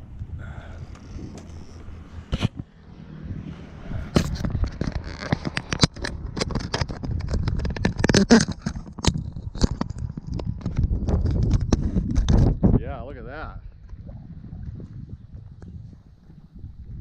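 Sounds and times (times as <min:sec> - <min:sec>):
handling clicks and knocks: 0:04.1 - 0:12.4.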